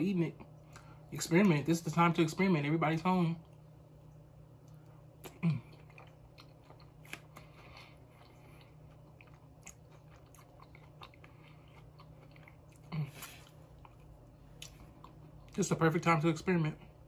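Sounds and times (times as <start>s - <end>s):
chewing soft food: 3.4s - 15.8s
lip smacks and mouth clicks: 4.6s - 15.6s.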